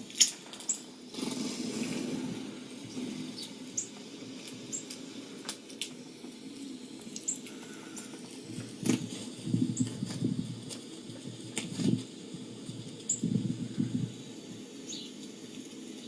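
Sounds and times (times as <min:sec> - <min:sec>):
small birds chirping: 0:02.8 - 0:04.0, 0:04.6 - 0:05.0, 0:07.2 - 0:08.0, 0:13.0 - 0:15.3.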